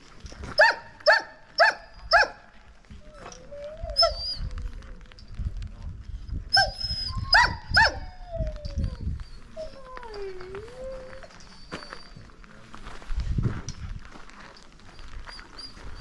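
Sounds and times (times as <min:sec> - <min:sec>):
dogs barking: 0:00.6 - 0:02.5, 0:07.4 - 0:08.0
dog whining: 0:03.0 - 0:04.7, 0:06.6 - 0:12.3, 0:15.0 - 0:16.0.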